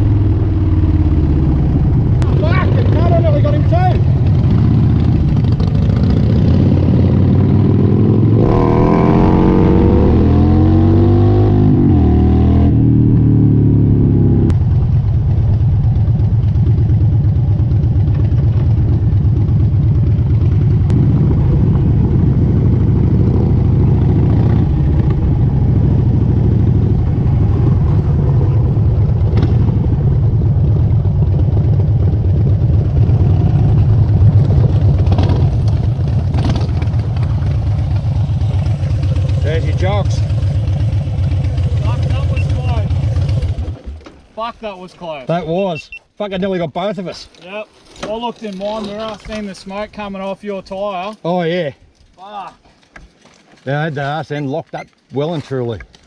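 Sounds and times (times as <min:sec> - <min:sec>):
motorcycle engine accelerating and cruising: 0:00.0 - 0:44.3.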